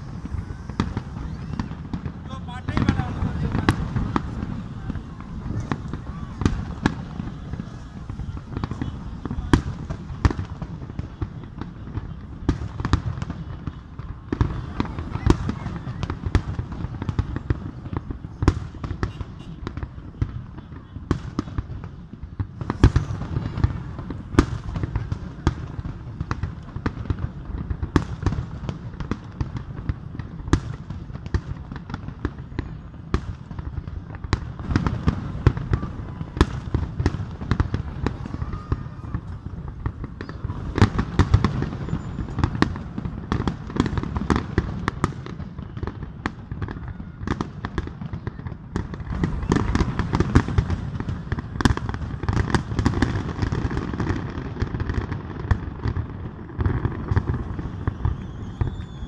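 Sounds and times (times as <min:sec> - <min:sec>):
fireworks bursting in bangs: 0:00.0 - 0:59.0.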